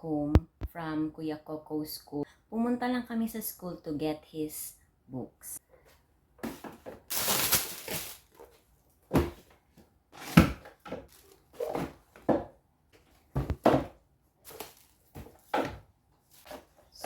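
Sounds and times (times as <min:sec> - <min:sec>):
objects knocking on wood: 0:13.3 - 0:14.0.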